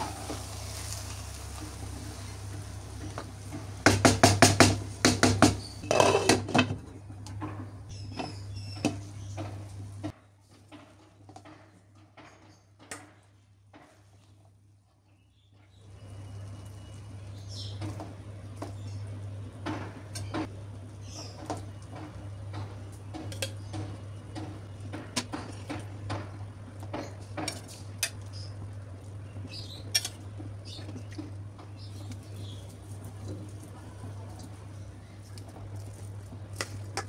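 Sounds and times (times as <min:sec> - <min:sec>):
spatula scraping cooking pot: 0:05.6 - 0:06.7.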